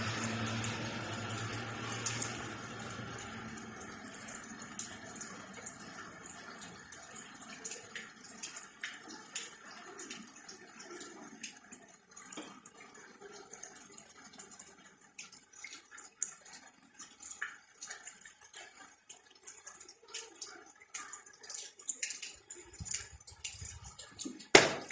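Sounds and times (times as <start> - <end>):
faint wash of water: 0.0 - 14.7
rain drips ticking: 0.0 - 24.9.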